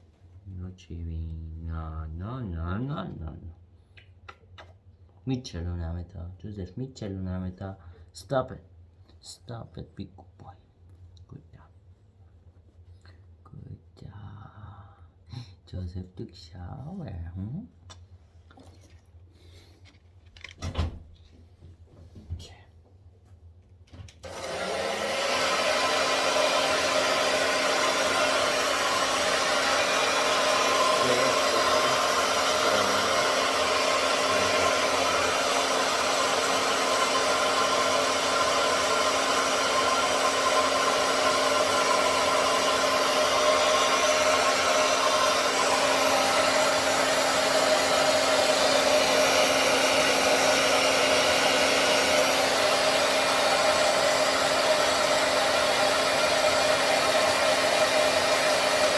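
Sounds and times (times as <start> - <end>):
hair dryer blowing: 24.2 - 58.9.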